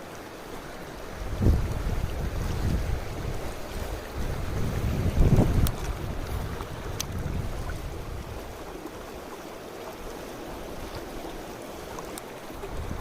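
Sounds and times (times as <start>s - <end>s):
stream water rushing: 0.0s - 13.0s
wind buffeting microphone: 1.1s - 8.8s, 12.5s - 13.0s.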